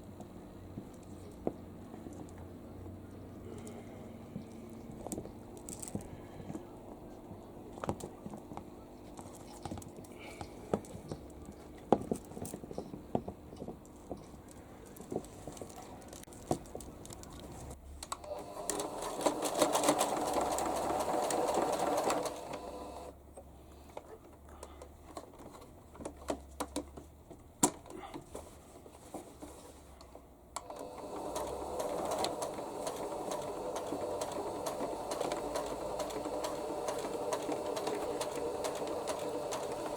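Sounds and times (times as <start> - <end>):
sewing machine stitching: 18.2 - 23.1, 30.6 - 39.9.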